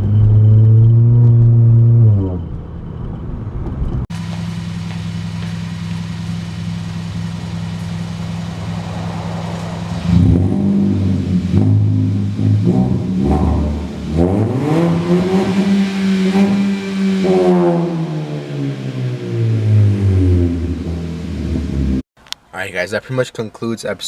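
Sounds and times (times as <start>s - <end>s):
loud car exhaust idling and revving: 0.0s - 22.0s.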